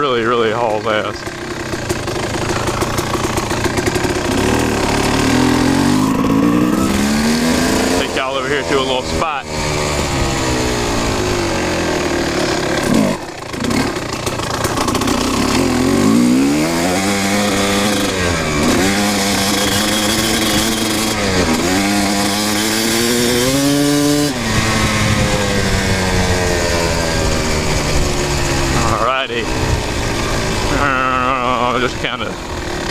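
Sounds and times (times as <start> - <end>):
two-stroke dirt bike engine: 0.0 - 32.9.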